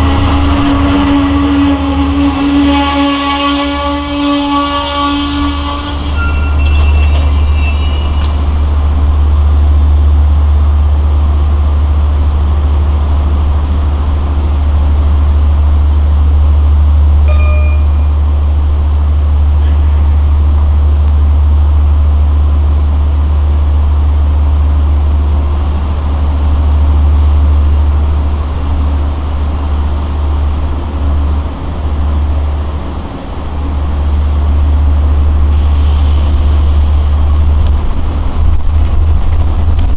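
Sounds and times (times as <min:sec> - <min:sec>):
locomotive low rumble: 0:00.0 - 0:39.9
short beep: 0:06.1 - 0:08.4, 0:17.3 - 0:18.2.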